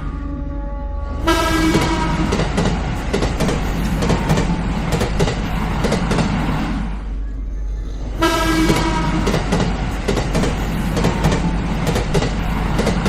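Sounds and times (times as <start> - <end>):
train horn: 0.0 - 2.6, 7.5 - 9.6
train wheels clattering over rail joints: 1.6 - 6.8, 8.5 - 13.0.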